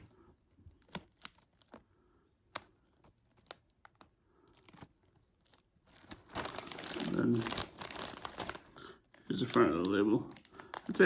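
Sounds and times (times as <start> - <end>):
foil chip bag crinkling: 0.7 - 11.0.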